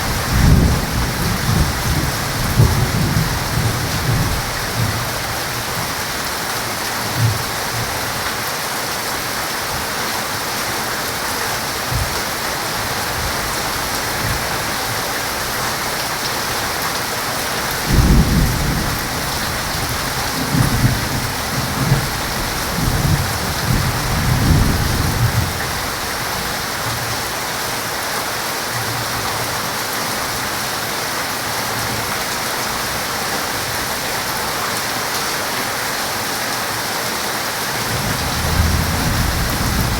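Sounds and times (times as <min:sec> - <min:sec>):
thunder rumbling: 0:00.0 - 0:05.2, 0:17.8 - 0:25.9, 0:37.9 - 0:39.9
heavy rain falling: 0:00.0 - 0:39.9.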